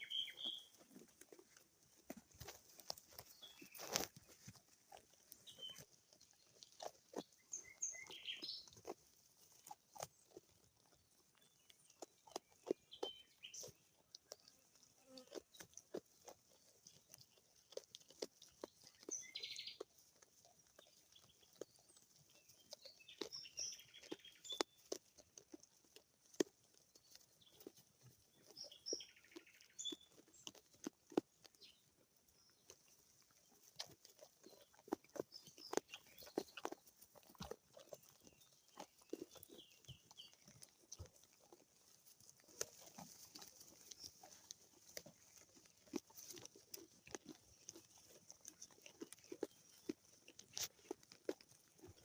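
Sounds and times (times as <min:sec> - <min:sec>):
faint bird chirps: 0:00.0 - 0:00.7
sheep tearing grass and chewing: 0:00.0 - 0:52.0.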